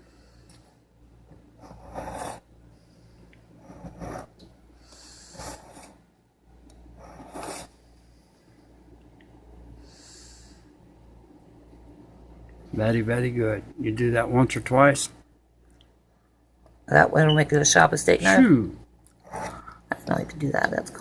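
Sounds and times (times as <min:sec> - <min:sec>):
knife scraping on sharpener: 0:07.1 - 0:07.7.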